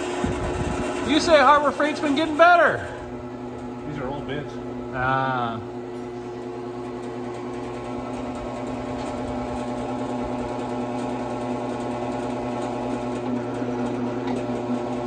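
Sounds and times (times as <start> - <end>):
electric drill running: 4.6 - 15.0.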